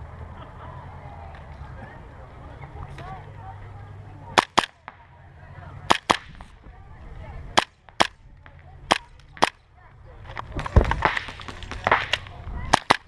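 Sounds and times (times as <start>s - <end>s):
airsoft pistol shots: 4.4s - 4.9s, 5.9s - 6.5s, 7.6s - 8.2s, 10.8s - 13.0s.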